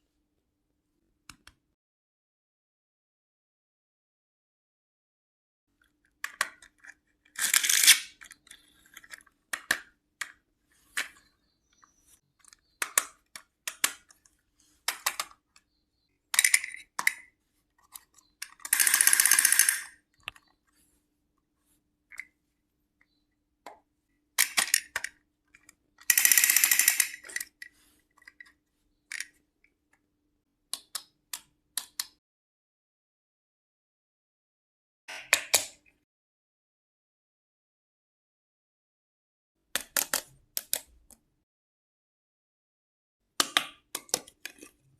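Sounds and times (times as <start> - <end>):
toy pieces clicking and tapping: 6.2 - 10.4, 16.3 - 20.5, 24.4 - 28.5.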